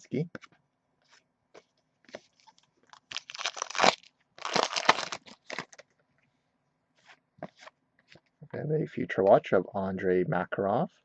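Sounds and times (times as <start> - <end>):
trading cards rustling: 2.1 - 5.8.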